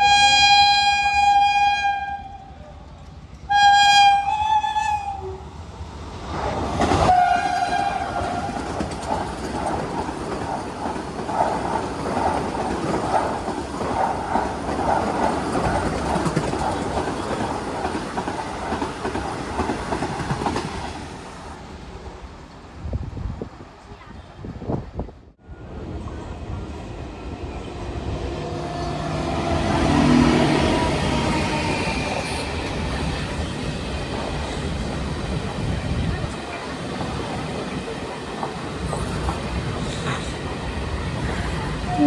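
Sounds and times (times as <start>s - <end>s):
train horn blasts: 0.0s - 2.5s, 3.5s - 5.4s, 7.1s - 8.5s
train wheels clattering over rails: 6.4s - 21.4s, 28.7s - 41.9s.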